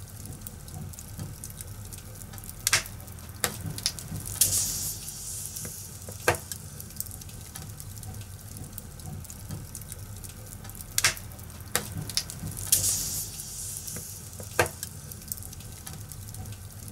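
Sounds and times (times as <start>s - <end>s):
fire crackling: 0.0s - 16.9s
sharp pops of fire: 2.6s - 7.9s, 10.6s - 16.1s.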